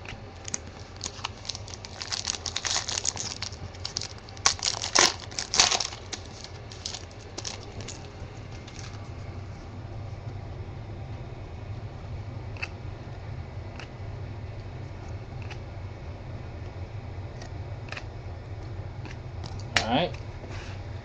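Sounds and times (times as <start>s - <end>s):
card packaging crinkling: 0.4s - 9.1s.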